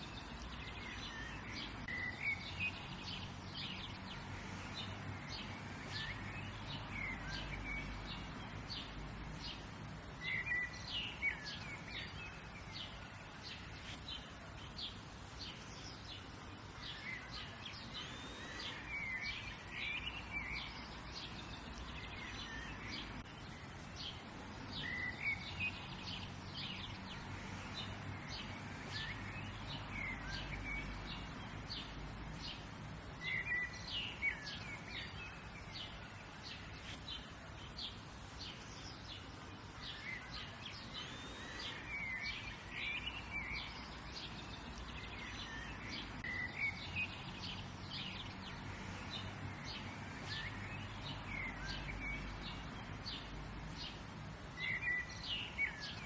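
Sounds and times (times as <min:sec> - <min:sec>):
small birds chirping and trilling: 0:00.0 - 0:56.0.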